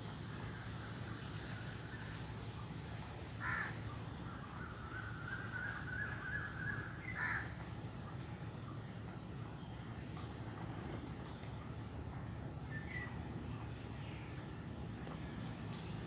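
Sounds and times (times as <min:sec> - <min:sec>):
crow cawing: 0:03.4 - 0:03.8, 0:07.2 - 0:07.5.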